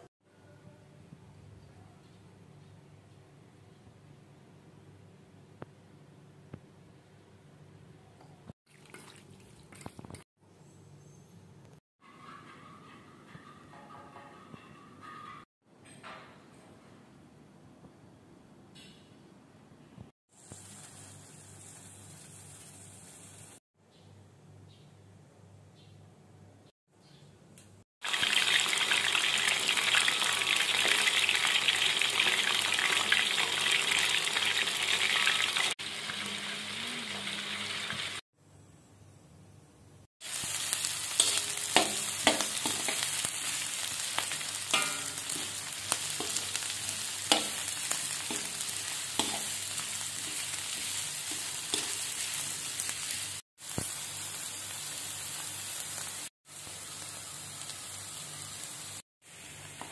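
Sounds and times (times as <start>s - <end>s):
food sizzling in hot oil: 20.3s - 23.6s, 28.0s - 38.2s, 40.2s - 59.9s
spatula scraping a wok: 41.0s - 43.6s, 44.6s - 52.6s.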